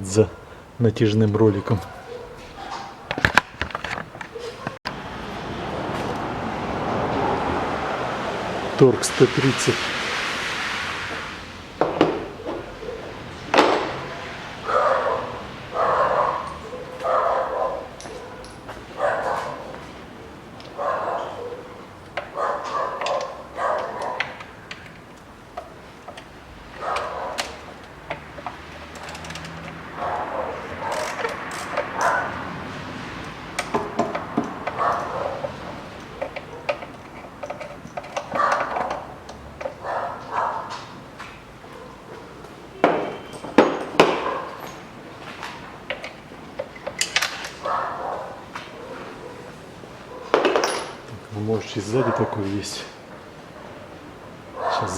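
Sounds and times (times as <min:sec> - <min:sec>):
dog barking: 0:00.2 - 0:00.6, 0:01.6 - 0:03.3, 0:04.3 - 0:04.8, 0:12.4 - 0:24.5, 0:26.7 - 0:27.7, 0:29.9 - 0:32.6, 0:34.6 - 0:35.6, 0:36.2 - 0:36.9, 0:38.3 - 0:41.0, 0:41.6 - 0:42.4, 0:44.1 - 0:44.7, 0:47.6 - 0:50.4, 0:51.9 - 0:52.5, 0:53.6 - 0:54.9
metal tools knocking: 0:33.2 - 0:39.9, 0:50.3 - 0:51.1
metallic clicks of hand tools: 0:45.9 - 0:47.6.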